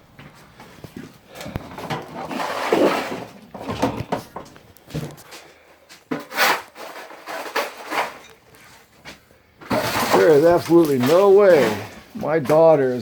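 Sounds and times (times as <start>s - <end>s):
rustling of debris: 0.1s - 13.0s
debris scraping: 1.4s - 5.3s, 6.0s - 9.0s, 9.6s - 13.0s.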